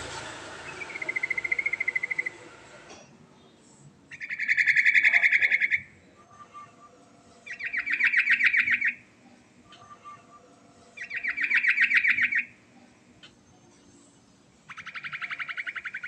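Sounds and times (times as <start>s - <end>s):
hiss: 0.0s - 3.0s
bird singing rattling trills: 0.6s - 2.4s, 4.1s - 5.9s, 7.4s - 9.0s, 10.9s - 12.6s, 14.7s - 16.0s.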